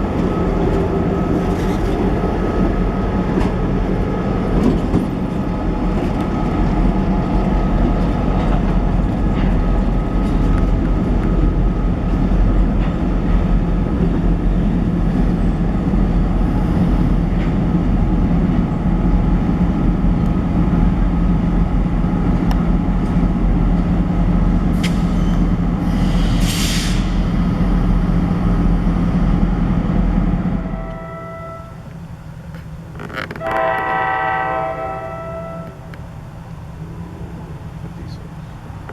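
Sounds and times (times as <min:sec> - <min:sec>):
train wheels clicking on rails: 0:00.0 - 0:18.7
diesel locomotive engine drone: 0:00.0 - 0:38.9
air hiss: 0:25.9 - 0:27.2.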